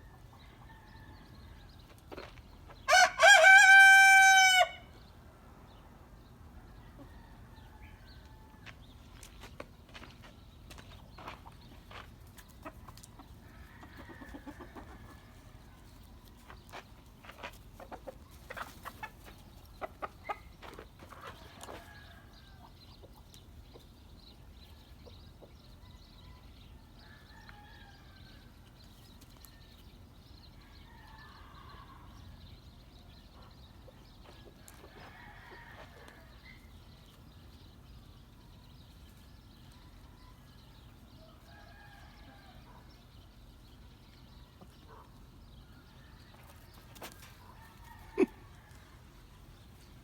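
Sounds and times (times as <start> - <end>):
chickens clucking: 10.9 - 22.0, 22.6 - 26.2, 43.7 - 45.6, 46.2 - 50.0.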